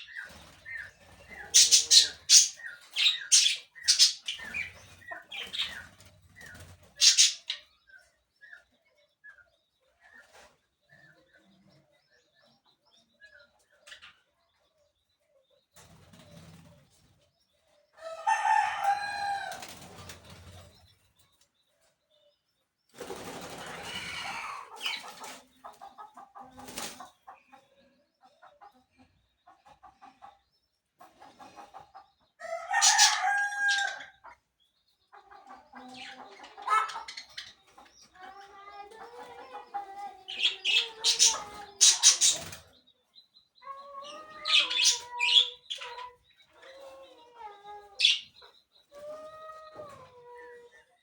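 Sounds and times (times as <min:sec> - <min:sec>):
bird calls: 0:00.0 - 0:11.9, 0:35.0 - 0:51.0
chicken clucks: 0:00.0 - 0:51.0
rooster crowing: 0:18.0 - 0:19.6, 0:32.4 - 0:34.0.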